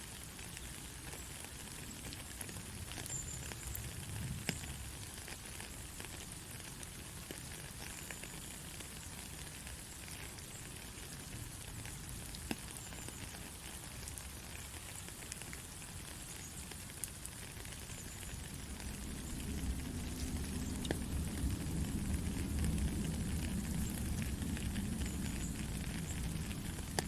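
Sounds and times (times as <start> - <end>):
gentle rain: 0.0 - 27.0
water drops ticking: 18.0 - 27.0.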